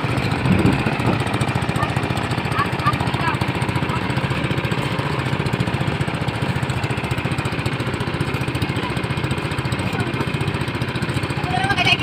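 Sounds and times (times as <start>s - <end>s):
small boat motor chugging: 0.0s - 12.0s.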